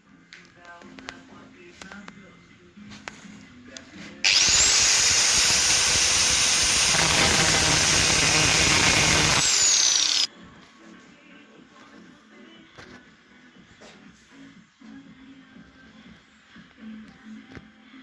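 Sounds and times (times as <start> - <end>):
power tool whining: 4.2 - 10.3.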